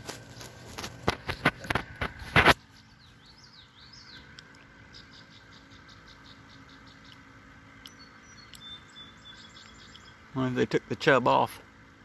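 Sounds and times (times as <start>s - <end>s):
finger rubbing phone microphone: 0.0s - 2.6s
songbird singing: 1.0s - 12.0s.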